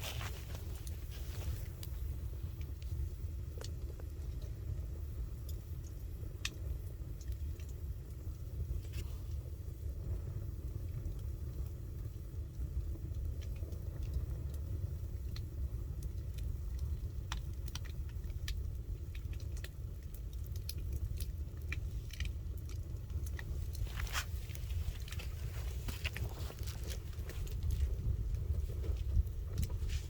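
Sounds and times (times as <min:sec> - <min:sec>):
campfire crackling and popping: 0:00.0 - 0:30.0
steady low rumble: 0:00.0 - 0:30.0.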